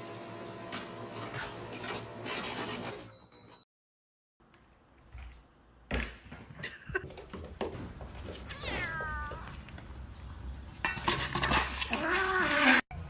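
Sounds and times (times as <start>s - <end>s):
cat meowing: 8.5s - 9.6s.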